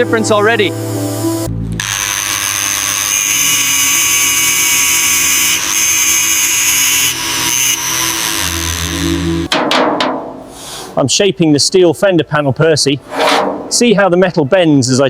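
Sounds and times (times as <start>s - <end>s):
small power tool whining: 1.8s - 9.5s.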